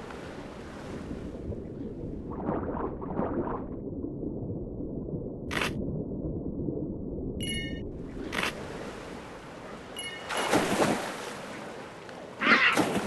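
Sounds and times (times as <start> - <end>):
rushing water with splashes: 7.4 - 13.0.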